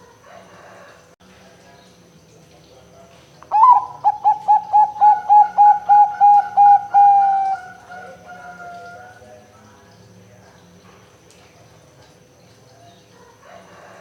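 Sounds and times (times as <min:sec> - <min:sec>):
dove cooing: 0:03.5 - 0:09.2.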